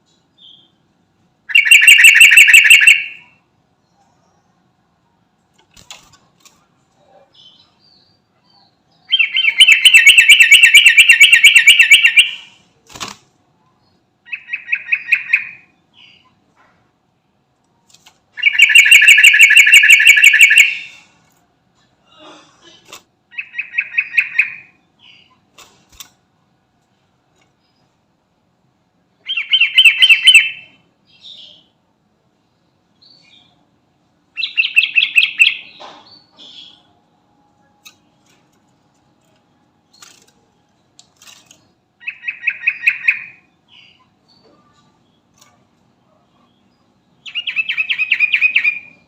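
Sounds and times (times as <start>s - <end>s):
bulbul singing: 1.5s - 3.3s, 9.0s - 12.6s, 18.4s - 21.0s, 42.0s - 45.4s, 46.4s - 49.0s.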